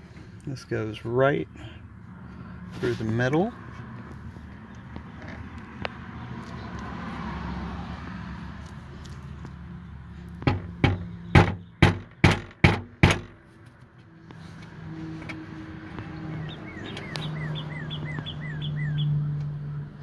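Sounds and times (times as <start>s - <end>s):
sharp knocks on trim: 10.4s - 13.4s.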